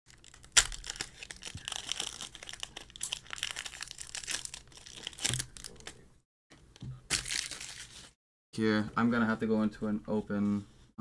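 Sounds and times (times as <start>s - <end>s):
foil wrapper crinkling and tearing: 0.1s - 6.0s, 7.1s - 8.2s.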